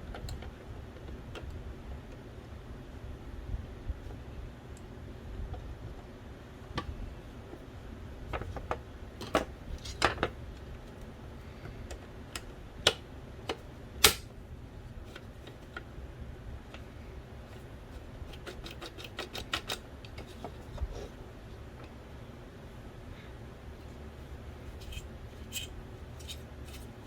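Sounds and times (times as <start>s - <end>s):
clicks of plastic and metal parts: 18.3s - 20.6s.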